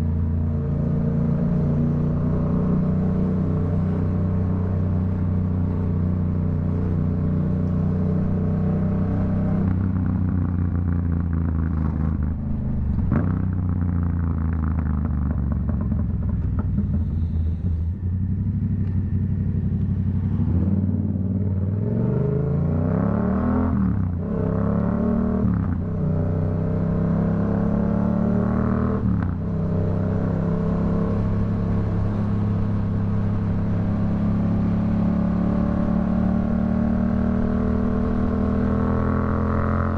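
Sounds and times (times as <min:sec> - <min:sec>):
motorcycle engine while riding: 0:00.0 - 0:39.9
exhaust pops and crackles: 0:10.8 - 0:17.7.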